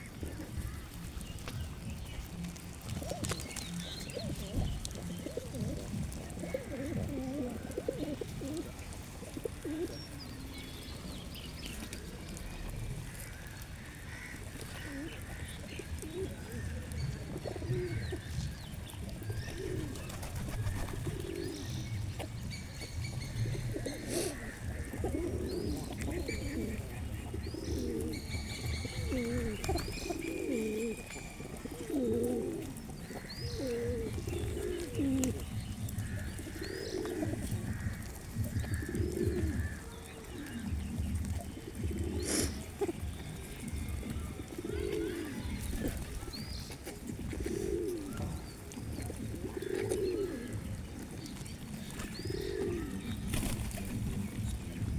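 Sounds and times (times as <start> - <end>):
pigeons cooing: 0.0 - 54.9
small birds chirping: 0.0 - 54.9.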